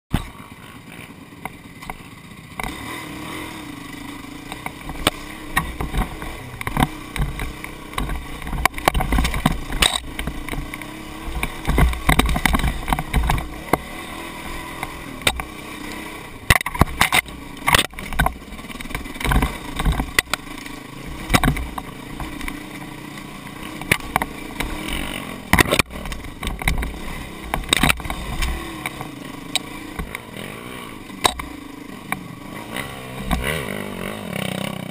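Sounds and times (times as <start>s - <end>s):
vehicle engine revving: 0.2s - 34.9s
knocks and clatter from bumps: 4.5s - 15.6s, 16.4s - 23.0s, 23.6s - 30.3s.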